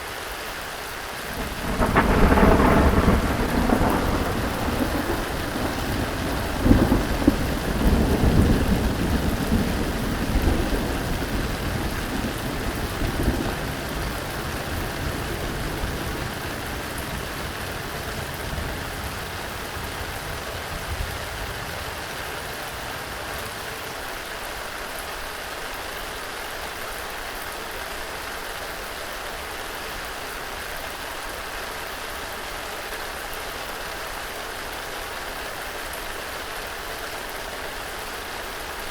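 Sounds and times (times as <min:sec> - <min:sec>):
steady rain: 0:00.0 - 0:38.9
rumble of thunder: 0:01.3 - 0:23.8.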